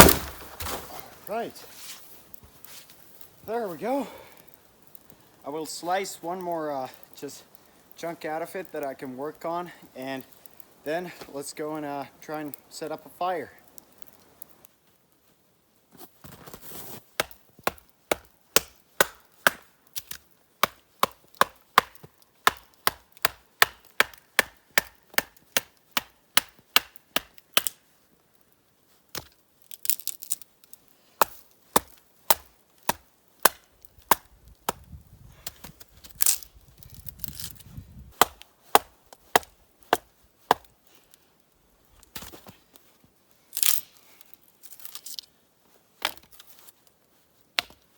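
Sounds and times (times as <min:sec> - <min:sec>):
firewood being chopped: 0:00.0 - 0:02.8, 0:16.3 - 0:27.8, 0:29.1 - 0:40.8, 0:42.0 - 0:42.6, 0:43.6 - 0:43.9, 0:46.0 - 0:46.5, 0:47.5 - 0:47.9.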